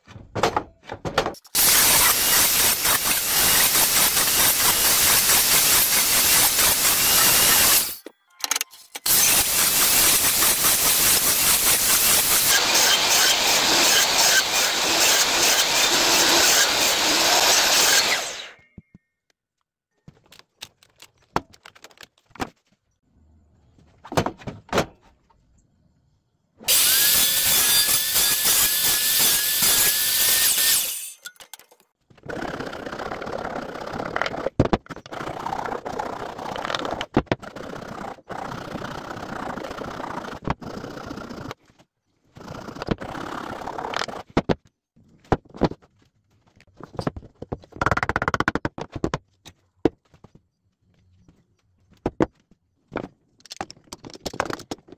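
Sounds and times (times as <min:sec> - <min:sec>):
power tool cutting wood: 0:01.6 - 0:08.0, 0:09.0 - 0:18.6, 0:26.7 - 0:31.2.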